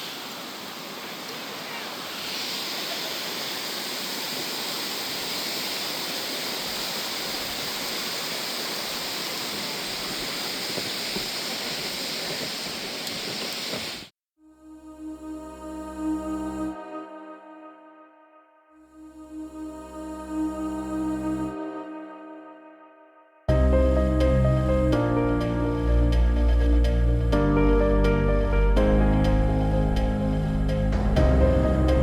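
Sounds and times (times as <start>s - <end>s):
water rushing: 0.0s - 14.1s.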